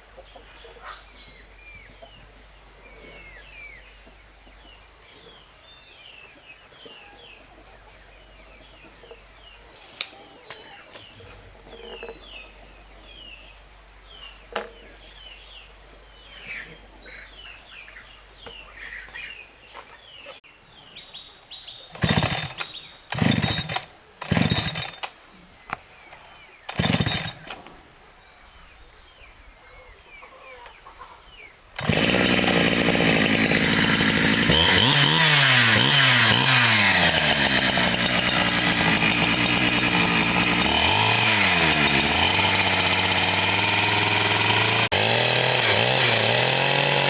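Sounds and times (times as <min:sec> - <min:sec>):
faint birdsong: 0:00.0 - 0:36.9
chainsaw cutting wood: 0:21.9 - 0:25.2, 0:26.6 - 0:27.6, 0:31.8 - 0:47.0.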